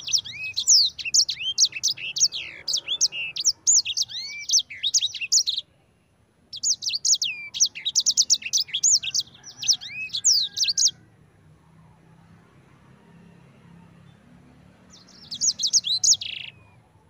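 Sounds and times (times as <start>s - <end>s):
finch twittering song: 0.0s - 11.0s, 14.8s - 17.0s.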